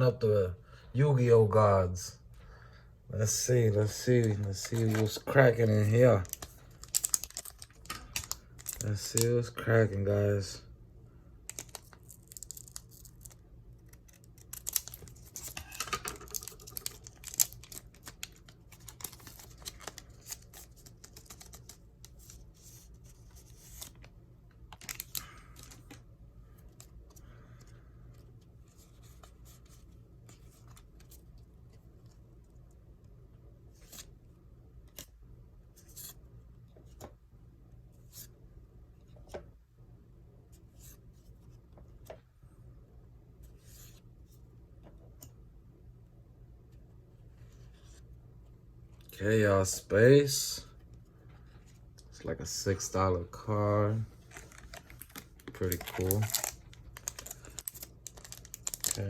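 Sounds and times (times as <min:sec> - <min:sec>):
foil pack rustling and tearing: 0:06.0 - 0:09.2, 0:11.5 - 0:21.8, 0:54.2 - 0:59.0.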